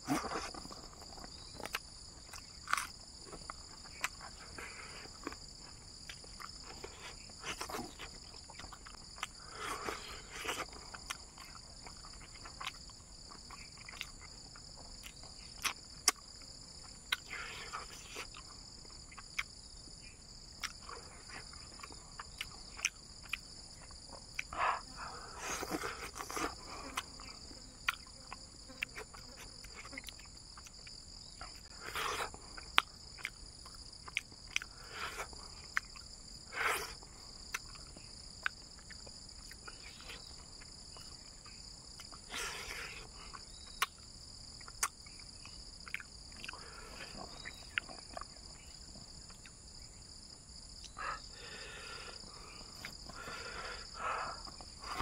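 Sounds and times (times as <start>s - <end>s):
person chewing and lip-smacking: 0.0s - 5.4s, 6.0s - 19.7s, 20.5s - 24.6s, 25.4s - 49.6s, 50.8s - 55.0s
high chorus of insects: 0.0s - 55.0s
sharp mouth clicks: 44.6s - 46.7s.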